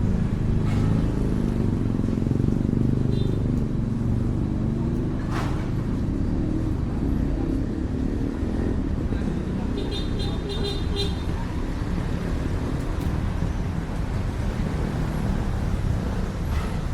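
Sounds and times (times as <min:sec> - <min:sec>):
road traffic rumble: 0:00.0 - 0:16.9.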